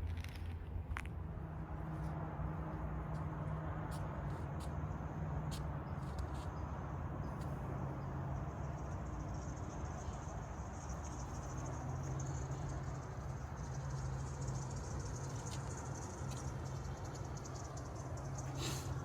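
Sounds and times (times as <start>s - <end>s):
low hum and rumble: 0.0s - 19.0s
crickets trilling: 7.8s - 19.0s.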